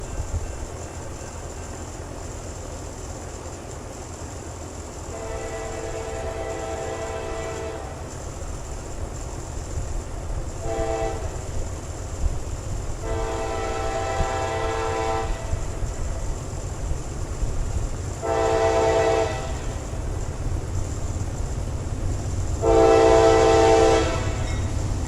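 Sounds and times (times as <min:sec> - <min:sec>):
moving train rumble: 0:00.0 - 0:25.0
locomotive air horn blasts: 0:05.1 - 0:08.0, 0:10.6 - 0:11.5, 0:13.0 - 0:15.6, 0:18.2 - 0:19.9, 0:22.6 - 0:24.7.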